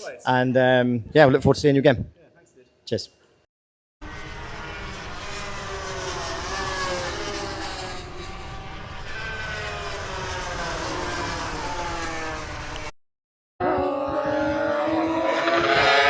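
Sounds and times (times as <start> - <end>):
distant engine drone: 4.0 - 12.9.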